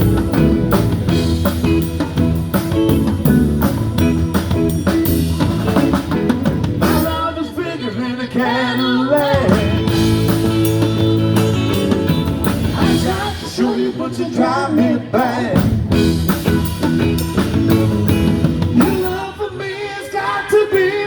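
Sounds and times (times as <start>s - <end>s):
blues-rock band playing live: 0.0s - 7.7s, 8.4s - 19.7s
person singing: 12.6s - 15.7s.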